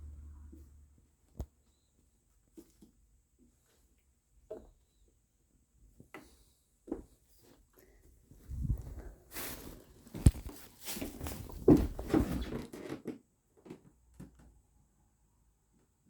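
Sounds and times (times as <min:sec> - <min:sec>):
cats scuffling: 0:06.0 - 0:13.8.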